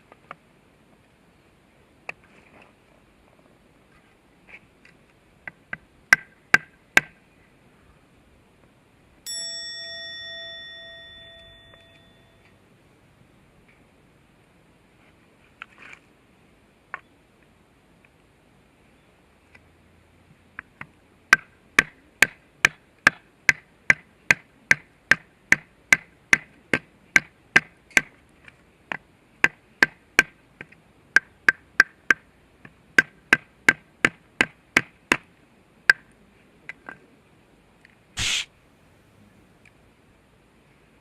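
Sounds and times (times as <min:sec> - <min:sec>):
sharp ringing knocks: 0:09.3 - 0:12.5
short rasp: 0:38.2 - 0:38.5.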